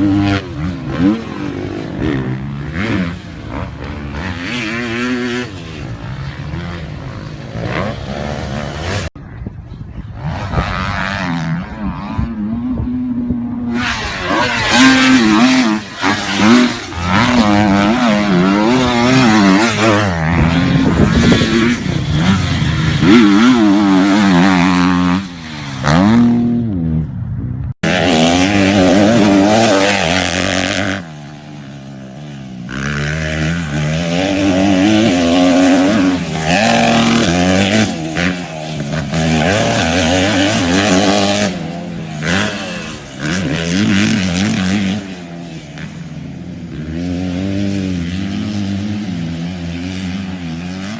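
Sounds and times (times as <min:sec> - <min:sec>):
dirt bike engines revving: 0:00.0 - 0:50.9.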